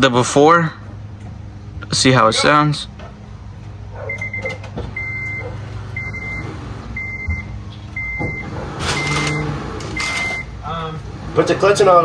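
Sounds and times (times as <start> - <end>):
car warning chime beeping: 4.1 - 10.7.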